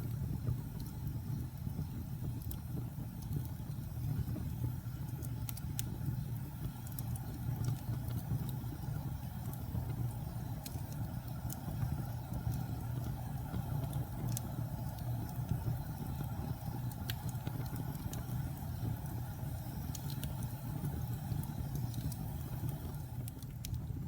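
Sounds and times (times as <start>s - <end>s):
sharp pops of fire: 0.0s - 24.0s
wood fire crackling: 0.0s - 24.0s.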